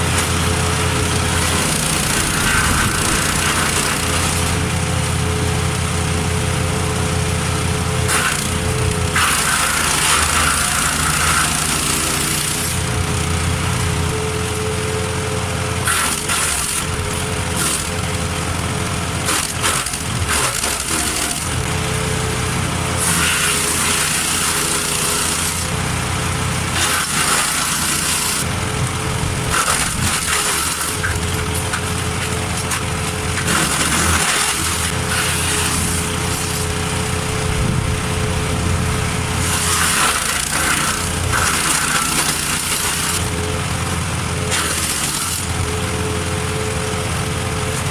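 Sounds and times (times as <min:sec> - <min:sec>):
wood chipper engine running: 0:00.0 - 0:47.9
branches shredding: 0:00.1 - 0:04.7, 0:08.0 - 0:13.4, 0:26.7 - 0:43.3.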